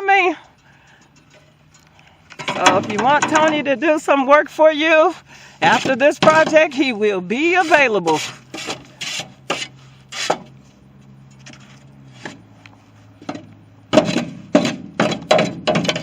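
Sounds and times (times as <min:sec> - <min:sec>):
shovel scraping sandy soil: 0:05.1 - 0:10.5.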